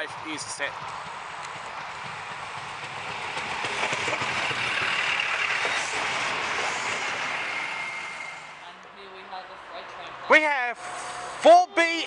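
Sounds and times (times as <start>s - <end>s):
train wheels on rails: 0.0s - 8.7s.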